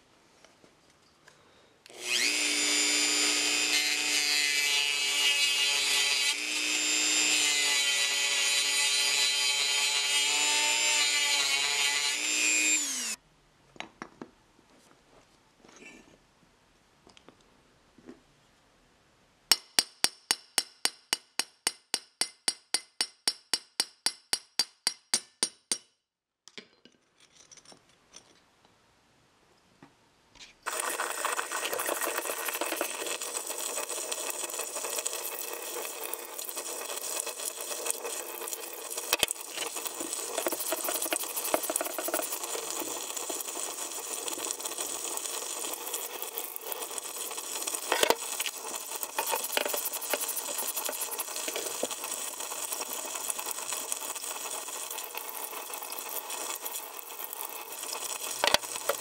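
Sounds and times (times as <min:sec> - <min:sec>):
power tool running harshly: 0:01.9 - 0:09.2.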